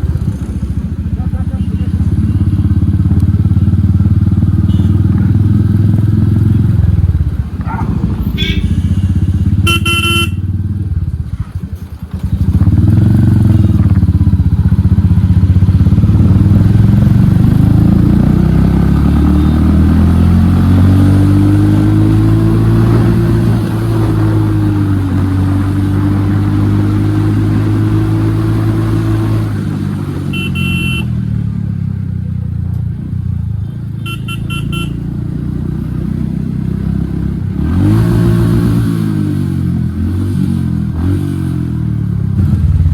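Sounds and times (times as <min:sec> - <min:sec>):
motorcycle engine running: 0:00.0 - 0:42.9
short vehicle horn beeps: 0:04.6 - 0:05.1, 0:08.3 - 0:10.5, 0:30.3 - 0:31.2, 0:33.6 - 0:35.0.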